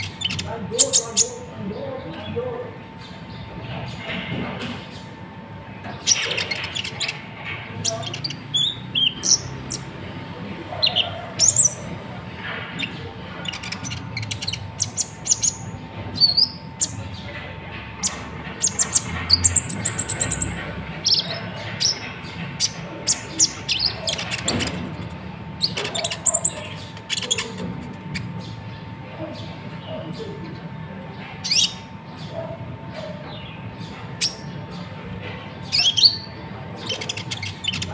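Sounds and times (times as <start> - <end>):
sunbird chirping and trilling: 0.0 - 4.1, 5.8 - 10.0, 10.8 - 12.0, 12.8 - 17.4, 18.0 - 37.9.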